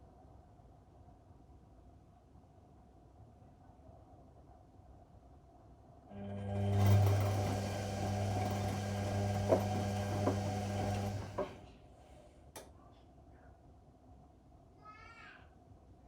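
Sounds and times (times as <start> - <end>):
washing machine motor humming: 6.1 - 11.8.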